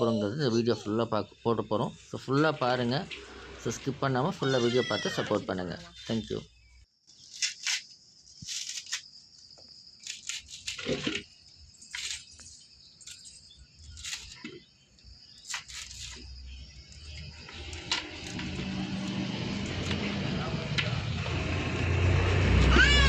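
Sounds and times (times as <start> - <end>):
coconut fibre rustling and crackling: 7.3 - 9.1.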